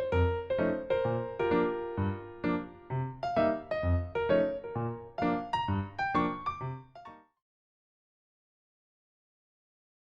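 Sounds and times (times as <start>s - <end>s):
piano-like keyboard notes: 0.0s - 7.4s.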